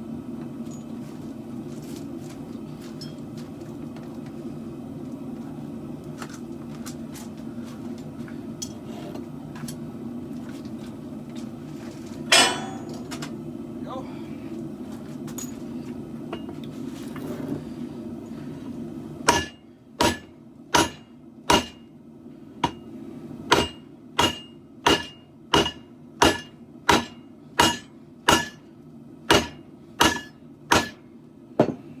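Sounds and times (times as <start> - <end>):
hammer ringing on steel blade: 12.3 - 13.1
low hum: 12.3 - 14.8.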